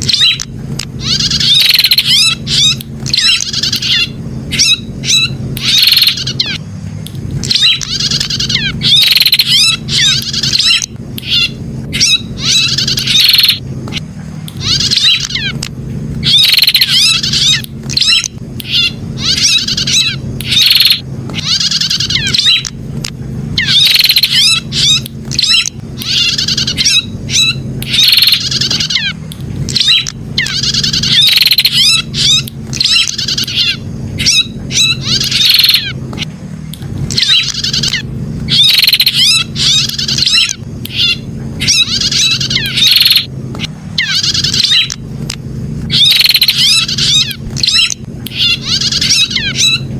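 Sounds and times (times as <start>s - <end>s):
bird chattering song: 0.0s - 49.9s
steady low hum: 0.0s - 49.9s.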